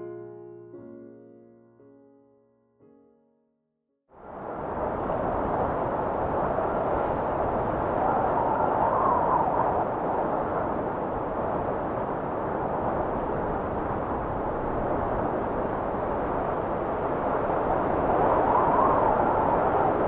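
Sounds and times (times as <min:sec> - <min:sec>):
wind blowing: 0:04.2 - 0:20.0.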